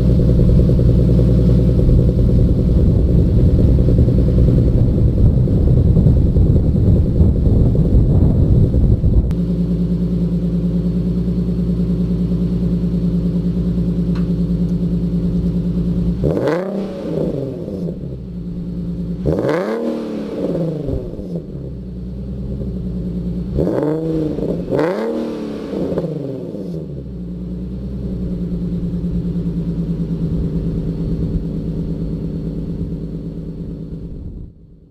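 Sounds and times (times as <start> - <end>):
car engine idling and revving: 0.0 - 34.9.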